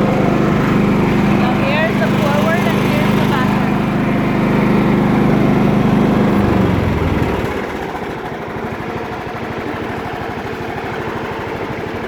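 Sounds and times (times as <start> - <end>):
lawn mower engine putter: 0.0 - 11.0.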